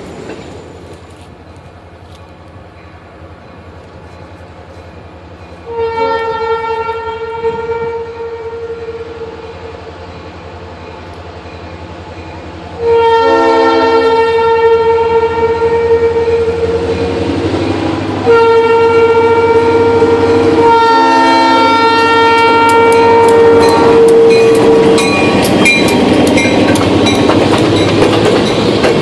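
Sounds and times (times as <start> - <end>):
locomotive rumbling: 0.0 - 29.0
locomotive air horn blasts: 5.6 - 9.6, 12.8 - 16.9, 17.8 - 25.1.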